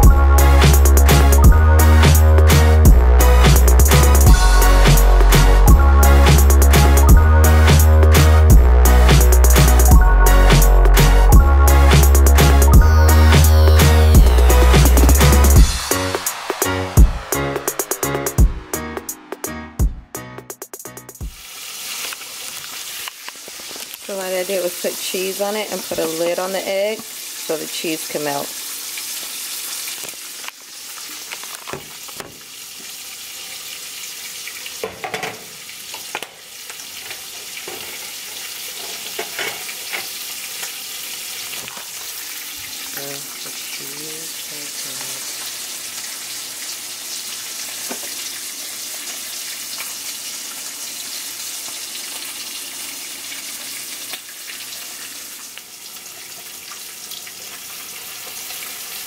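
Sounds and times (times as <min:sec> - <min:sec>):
egg sizzling in a pan: 0:21.2 - 0:59.0.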